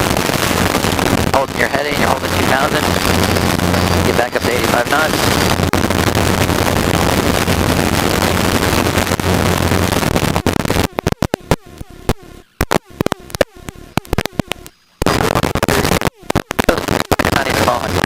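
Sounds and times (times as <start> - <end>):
helicopter cabin noise: 0.0 - 18.0
clicks and crackles: 9.8 - 18.0.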